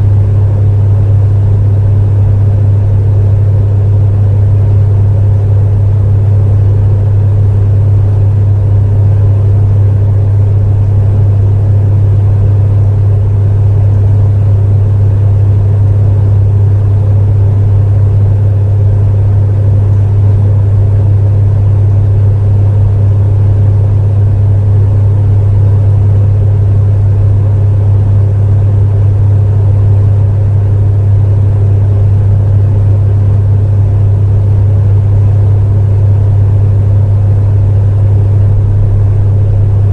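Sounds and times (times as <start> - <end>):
fan whirring: 0.0 - 39.9
space heater humming: 0.0 - 39.9.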